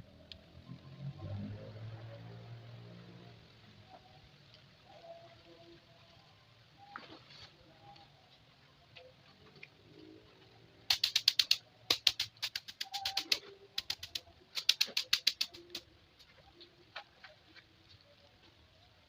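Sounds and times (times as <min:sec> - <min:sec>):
rapid sharp clicks: 0:10.8 - 0:16.3.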